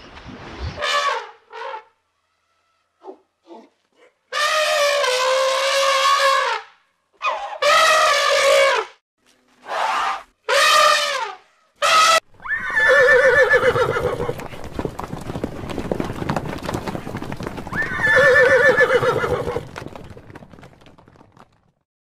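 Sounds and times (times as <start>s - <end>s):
elephant trumpeting: 9.6s - 14.2s
horse whinnying: 12.4s - 14.4s, 17.7s - 19.7s
hoofbeats: 12.4s - 21.7s.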